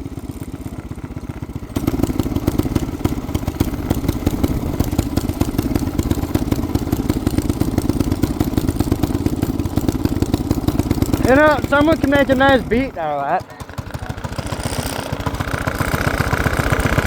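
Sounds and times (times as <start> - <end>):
small engine running: 0.0 - 17.0.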